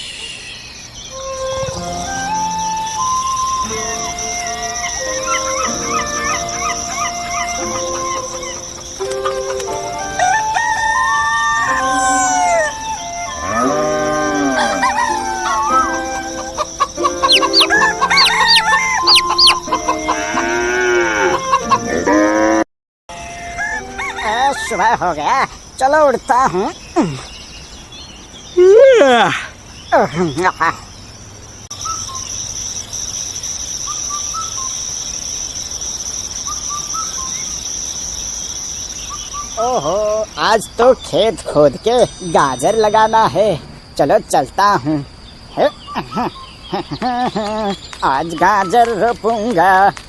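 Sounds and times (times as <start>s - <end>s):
small birds chirping: 0.0s - 21.9s, 24.0s - 50.0s
roosters crowing: 1.2s - 25.0s
hens clucking: 3.6s - 12.8s, 13.4s - 22.0s.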